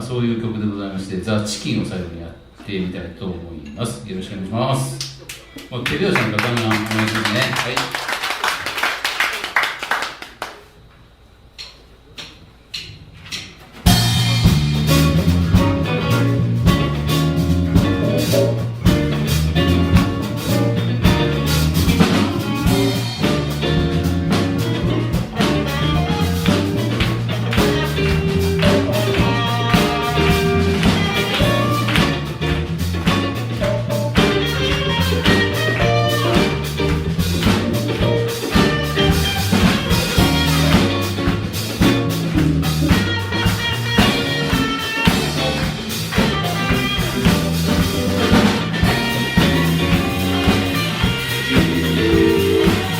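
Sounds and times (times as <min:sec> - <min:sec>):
drum kit: 0:13.3 - 0:52.9
electric bass: 0:13.9 - 0:52.9
electric guitar: 0:13.9 - 0:52.9
keyboards: 0:13.9 - 0:52.9.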